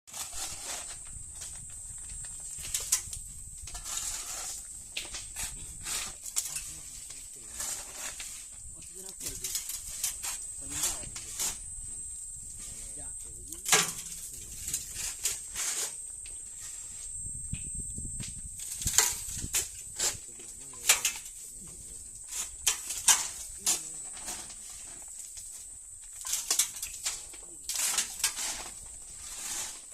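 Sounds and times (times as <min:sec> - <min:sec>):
stones scraping and clattering: 0:00.1 - 0:11.7, 0:18.6 - 0:29.9.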